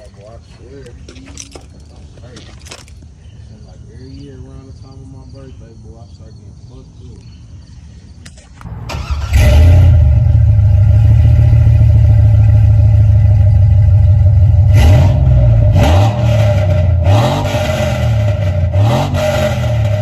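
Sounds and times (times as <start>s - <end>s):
car engine rumbling and revving: 8.6s - 20.0s.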